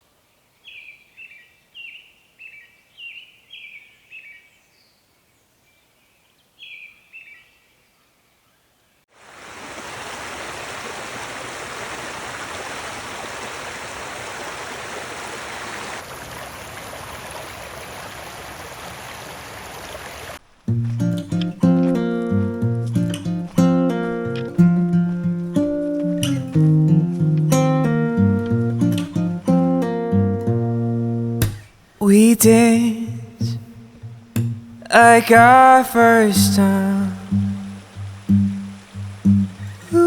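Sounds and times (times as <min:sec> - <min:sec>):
river water rushing: 0:09.1 - 0:30.0, 0:33.6 - 0:40.0.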